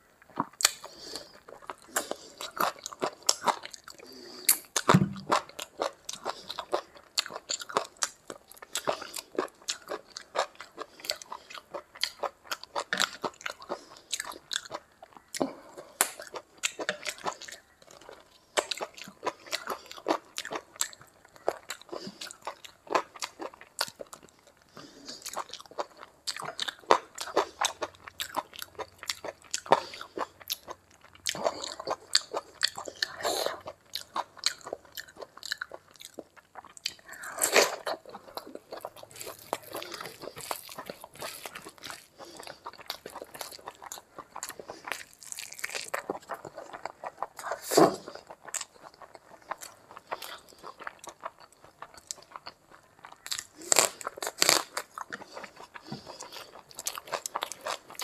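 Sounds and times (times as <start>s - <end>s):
person chewing with wet mouth clicks: 25.2s - 58.0s.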